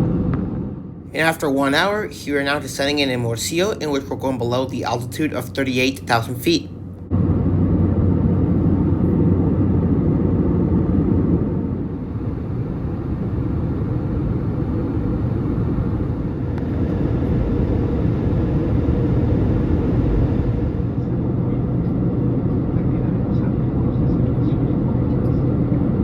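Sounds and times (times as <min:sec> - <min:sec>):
airplane cabin airflow rush: 0:00.0 - 0:26.0
jet engine drone: 0:00.0 - 0:26.0.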